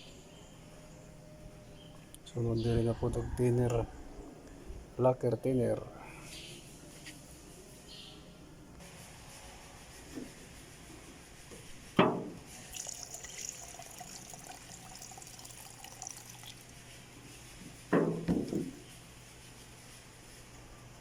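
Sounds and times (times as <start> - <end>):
knocks: 12.0 - 12.4, 17.9 - 18.8
liquid trickling into container: 12.6 - 17.0.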